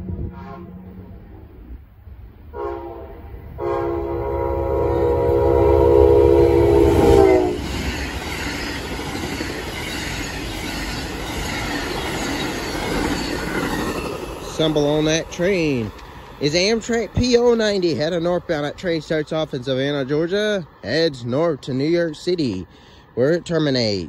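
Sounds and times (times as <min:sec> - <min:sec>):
locomotive horn blasts: 0:00.0 - 0:01.0, 0:02.5 - 0:07.7
train cars rushing by: 0:00.0 - 0:24.0.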